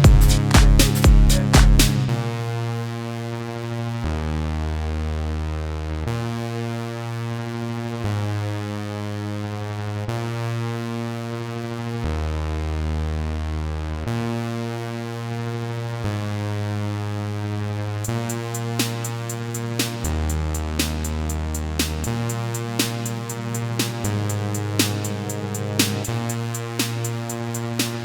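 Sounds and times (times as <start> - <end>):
sustained synthesizer chords: 0.0 - 3.2, 18.0 - 28.0.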